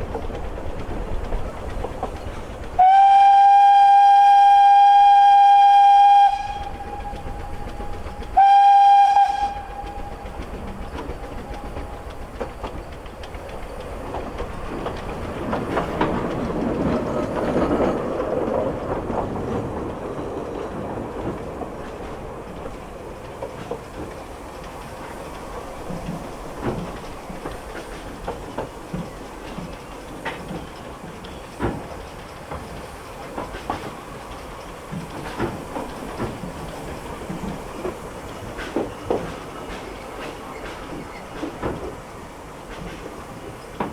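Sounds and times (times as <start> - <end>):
train rumble: 0.0 - 43.9
wheels clicking over rail joints: 0.0 - 43.9
steam locomotive whistle: 2.8 - 10.7.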